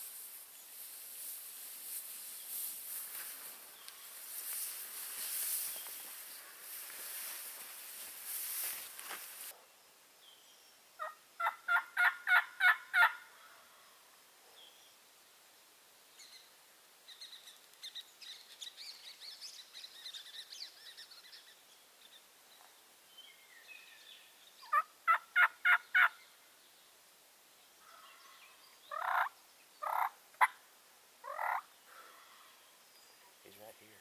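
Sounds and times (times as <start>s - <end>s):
wild turkey yelping: 11.0s - 13.4s, 24.6s - 26.2s, 27.9s - 30.6s, 31.2s - 31.7s.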